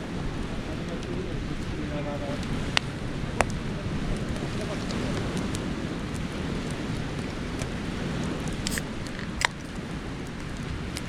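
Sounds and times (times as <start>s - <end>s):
bonfire burning: 0.0s - 11.0s
fire crackles and pops: 0.0s - 11.0s.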